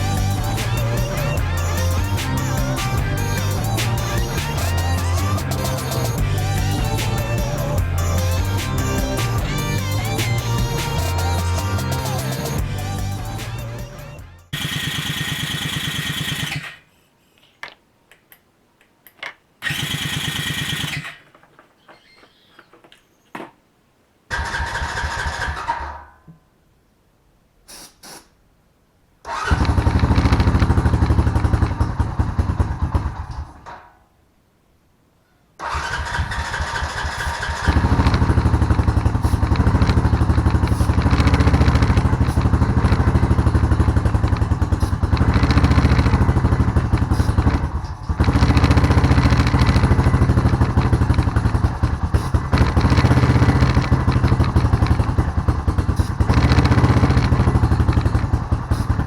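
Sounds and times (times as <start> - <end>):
atv engine running: 0.0 - 16.7, 19.6 - 22.8, 29.4 - 33.6, 35.8 - 59.0
engine starter cranking: 14.5 - 16.9, 17.5 - 23.5, 24.3 - 26.0, 29.3 - 33.7, 35.6 - 59.0.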